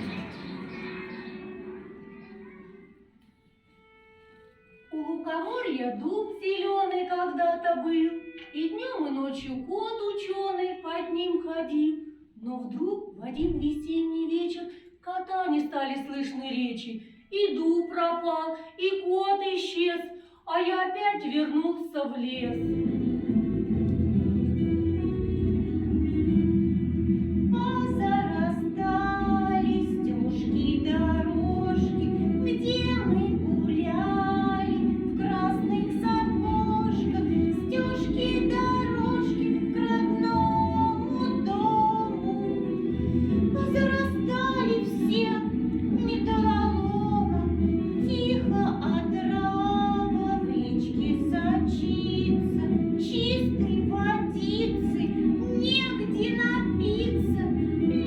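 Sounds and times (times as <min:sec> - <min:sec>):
instrumental accompaniment: 0:22.4 - 0:58.0
person singing: 0:27.5 - 0:58.0.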